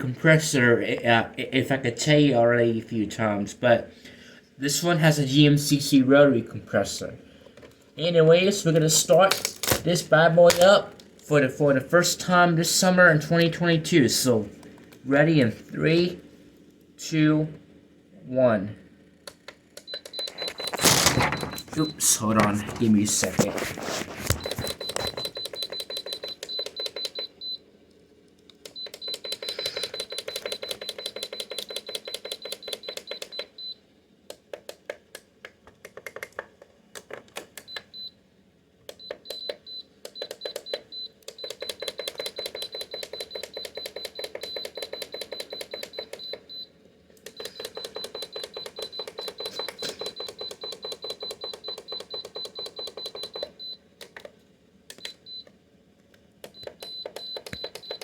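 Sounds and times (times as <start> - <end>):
rapid mechanical clicking: 28.7 - 33.5.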